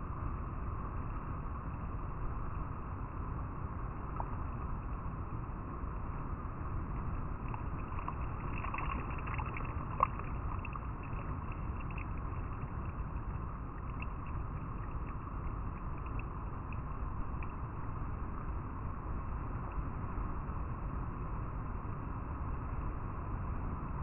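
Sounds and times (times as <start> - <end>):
river water flowing over rocks: 6.6 - 18.1.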